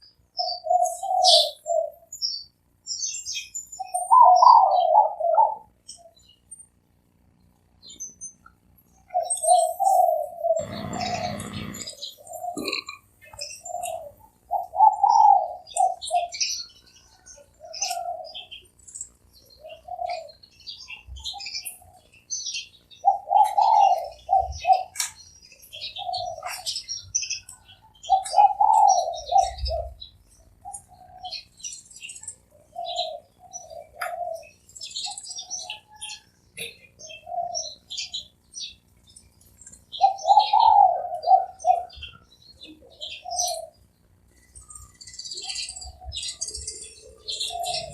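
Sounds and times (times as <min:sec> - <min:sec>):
small birds chirping: 0:00.0 - 0:47.9
dove cooing: 0:00.4 - 0:02.1, 0:03.8 - 0:05.8, 0:09.0 - 0:18.7, 0:19.4 - 0:22.2, 0:23.0 - 0:31.5, 0:32.4 - 0:38.3, 0:39.9 - 0:43.9, 0:44.5 - 0:47.9.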